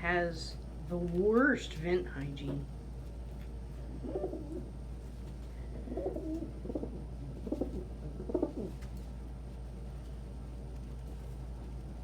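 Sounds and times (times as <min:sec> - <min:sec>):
steady low hum: 0:00.0 - 0:12.0
pigeons cooing: 0:03.9 - 0:04.8, 0:05.7 - 0:08.9.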